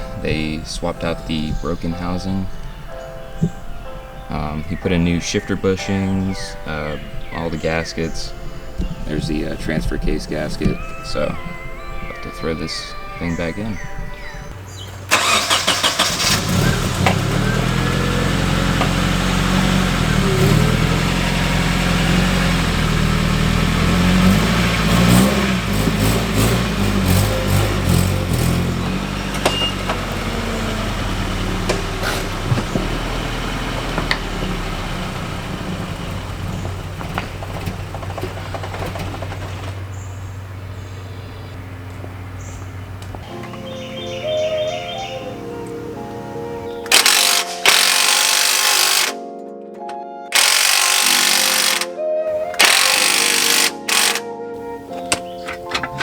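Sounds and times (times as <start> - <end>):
engine starting and running: 14.7 - 49.2, 50.3 - 56.0.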